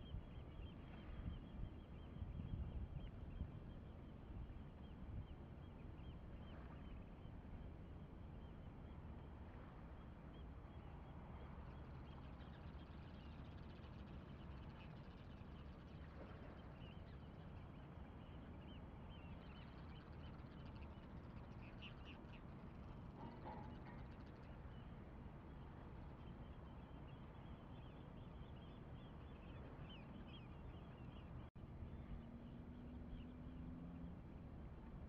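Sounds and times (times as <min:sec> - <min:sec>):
low bird call: 0:23.2 - 0:24.1.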